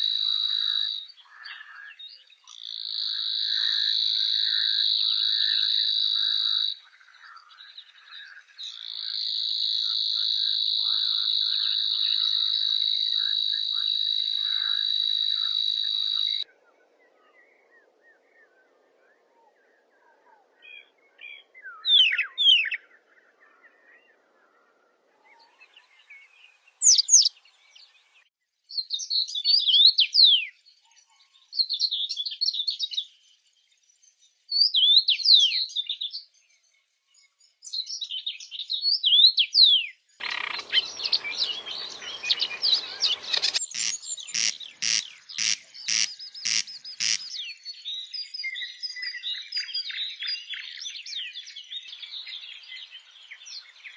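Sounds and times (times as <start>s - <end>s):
songbirds whistling: 25.3s - 27.9s, 37.6s - 53.9s
harsh rasping bird call: 40.2s - 47.5s
high bird chatter: 40.2s - 48.1s.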